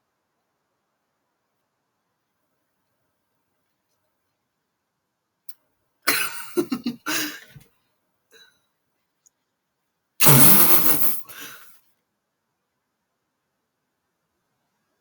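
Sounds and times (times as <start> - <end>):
distorted voice bursts: 10.2 - 11.2.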